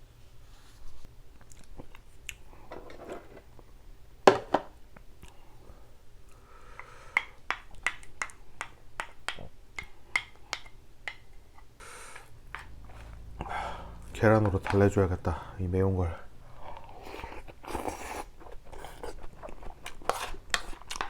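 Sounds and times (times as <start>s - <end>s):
person chewing: 16.4s - 21.0s.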